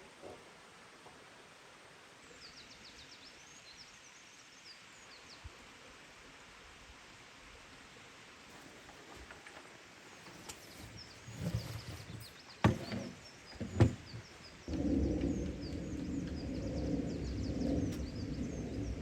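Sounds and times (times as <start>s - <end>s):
small birds chirping: 9.6s - 19.0s
steady low rumbling: 13.6s - 19.0s.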